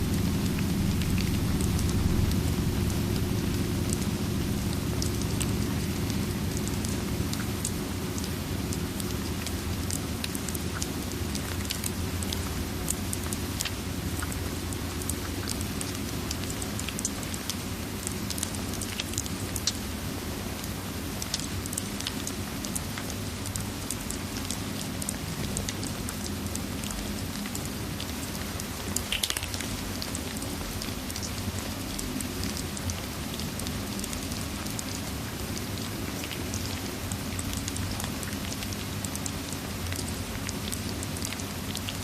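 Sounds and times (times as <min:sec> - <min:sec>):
low rumble: 0:00.0 - 0:09.9
wood fire crackling: 0:00.0 - 0:14.4
steady rain: 0:00.0 - 0:42.0.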